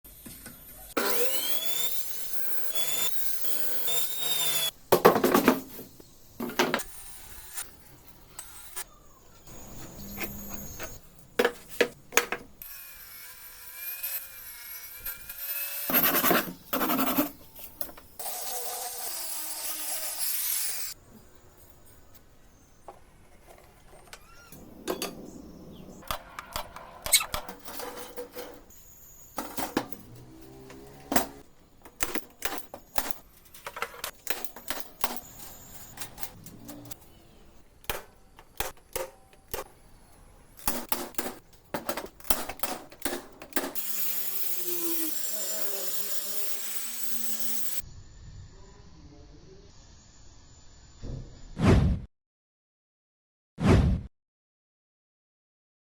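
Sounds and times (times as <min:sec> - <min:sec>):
power tools running: 0:01.0 - 0:04.8, 0:24.2 - 0:33.2
sawing wood: 0:12.6 - 0:17.5, 0:18.2 - 0:21.0.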